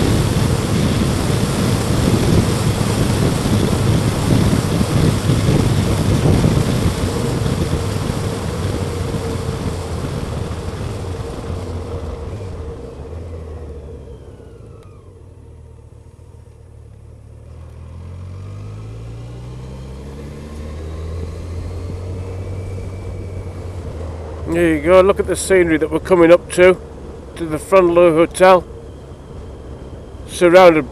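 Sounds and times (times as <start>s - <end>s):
wind rush: 0.0s - 12.4s
motorcycle engine: 0.0s - 30.9s.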